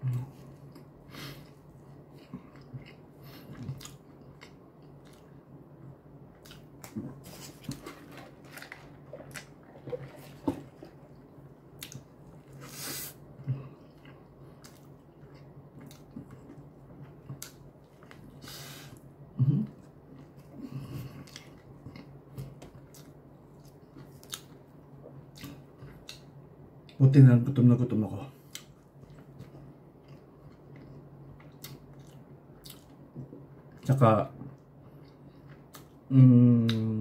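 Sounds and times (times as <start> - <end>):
chewing and mouth smacking: 0.1 - 5.3, 6.3 - 12.6, 13.8 - 18.4, 21.2 - 26.3, 28.5 - 36.0
short breathy hiss: 12.6 - 13.2.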